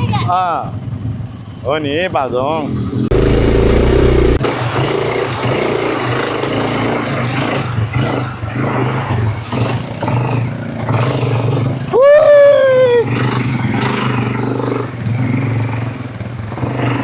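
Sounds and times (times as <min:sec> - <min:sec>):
quad bike engine running: 0:00.0 - 0:17.0.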